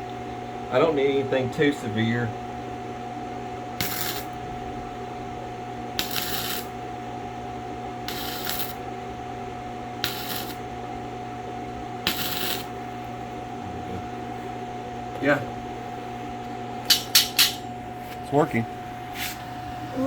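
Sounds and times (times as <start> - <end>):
steady hum: 0.0 - 20.0
welding arc crackling: 3.8 - 4.4, 6.0 - 6.8, 8.0 - 8.8, 10.0 - 10.7, 12.0 - 12.8.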